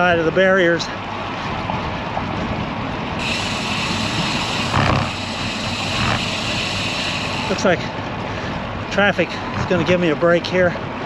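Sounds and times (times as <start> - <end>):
wind rushing over microphone: 1.0 - 10.2
high hiss: 3.2 - 7.9.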